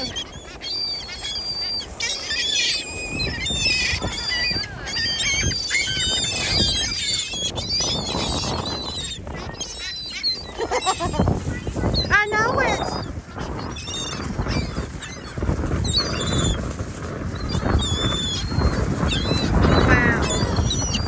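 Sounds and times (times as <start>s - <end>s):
seagulls squawking: 0.0s - 21.0s.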